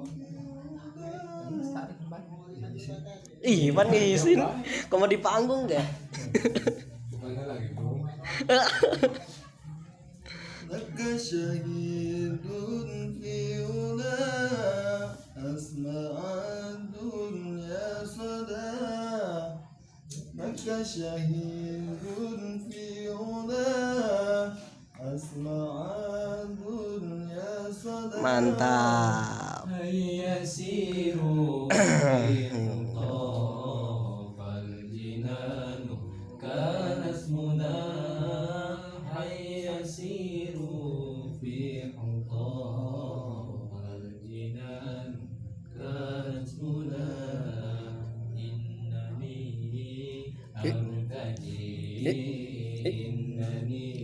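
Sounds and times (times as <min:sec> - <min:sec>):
devotional song chanted: 0:00.0 - 0:54.0
man chanting: 0:27.8 - 0:30.9, 0:31.5 - 0:34.3, 0:50.4 - 0:54.0.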